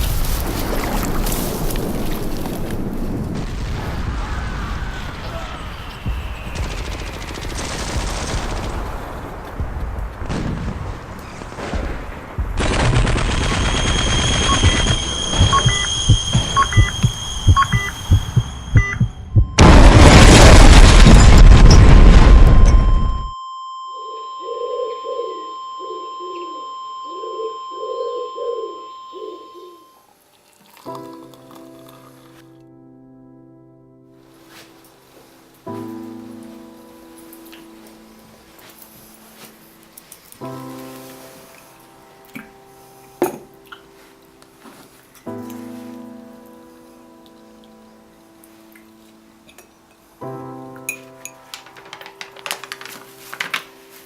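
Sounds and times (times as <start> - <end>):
machine-gun fire: 6.6 - 9.3, 11.5 - 15.6
high-pitched whistle: 13.6 - 19.6
steady high tone: 13.8 - 20.0
pigeon cooing: 24.1 - 29.8.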